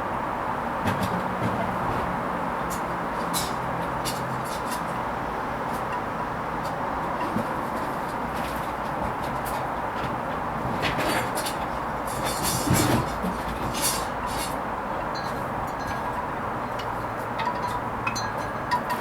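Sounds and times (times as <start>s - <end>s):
clicks and clinks from drum: 10.8s - 19.0s.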